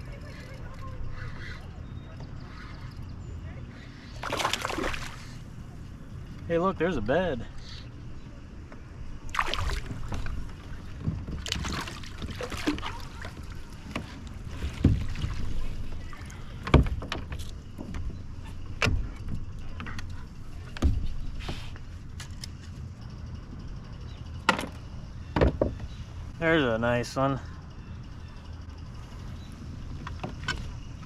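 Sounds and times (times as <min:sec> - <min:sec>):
low rumble of water: 0:00.0 - 0:22.2.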